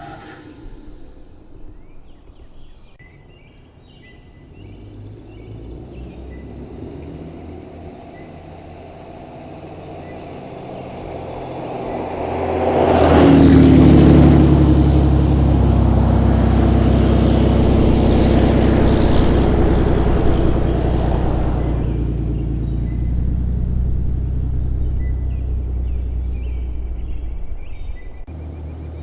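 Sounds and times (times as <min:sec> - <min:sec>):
diesel truck engine revving: 0:00.0 - 0:03.0, 0:04.3 - 0:29.0.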